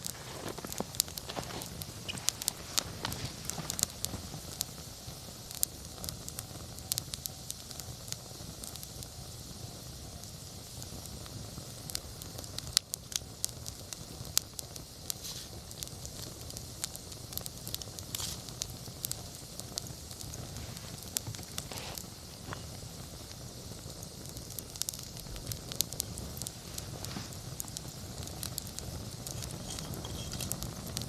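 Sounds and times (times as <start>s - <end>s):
burning wood crackling and popping: 0.0s - 31.0s
flames rushing: 0.0s - 31.0s.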